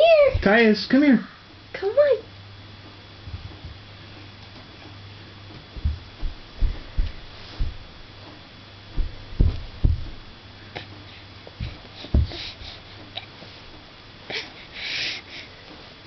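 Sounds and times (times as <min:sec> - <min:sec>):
steady low hum: 0:00.0 - 0:16.0
hands and knees patting floor: 0:03.2 - 0:10.4, 0:11.4 - 0:13.8.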